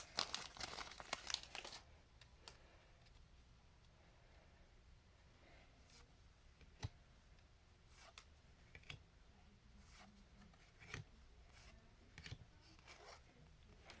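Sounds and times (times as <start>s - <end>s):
cards clicking and sliding: 10.6s - 11.1s.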